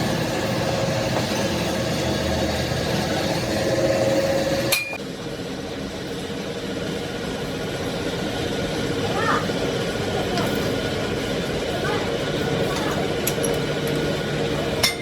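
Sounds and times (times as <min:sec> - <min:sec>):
workshop machinery noise: 0:00.0 - 0:15.0
sharp metallic clink: 0:04.7 - 0:05.0.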